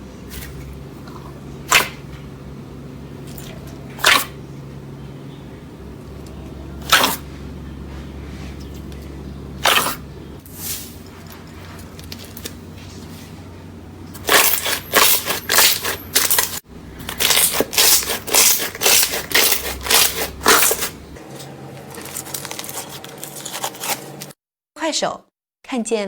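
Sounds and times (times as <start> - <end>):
slime crunching and crackling: 14.2 - 24.4.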